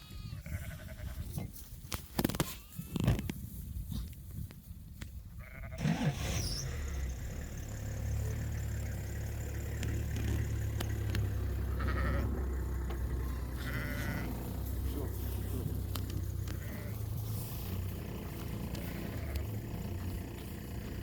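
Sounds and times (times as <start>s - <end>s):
sheep bleating: 0.0s - 1.3s, 2.4s - 3.1s, 5.4s - 5.8s, 11.7s - 12.4s, 13.2s - 14.5s, 15.2s - 17.1s, 18.7s - 19.7s
low rumble: 7.1s - 21.0s.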